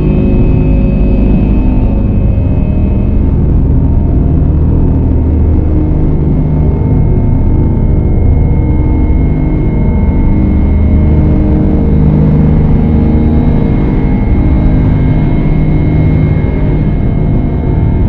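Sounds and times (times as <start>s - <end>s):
dark ambient drone music: 0.0s - 18.0s.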